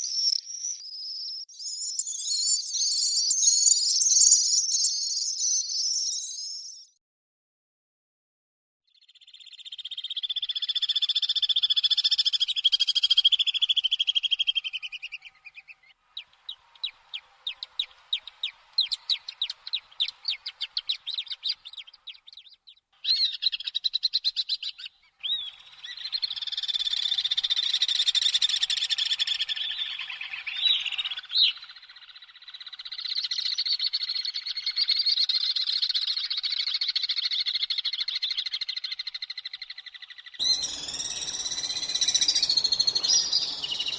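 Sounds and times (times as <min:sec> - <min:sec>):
swifts screaming: 0:40.4 - 0:43.9.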